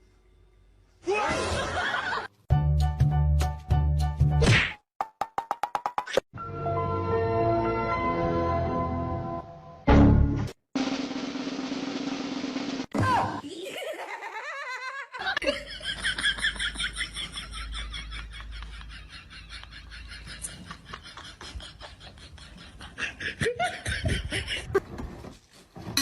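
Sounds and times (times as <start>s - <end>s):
person laughing hard: 13.4s - 24.9s.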